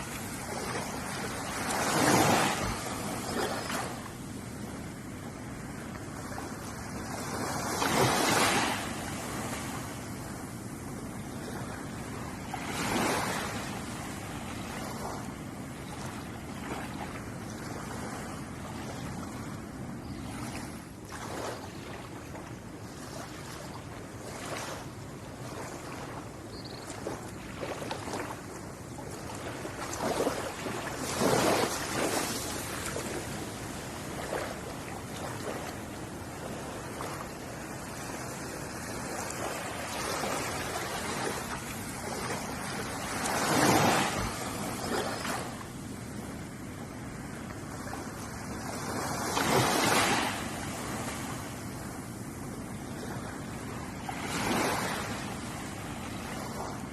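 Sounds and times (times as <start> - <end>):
ocean waves washing onto shore: 0.0 - 56.9.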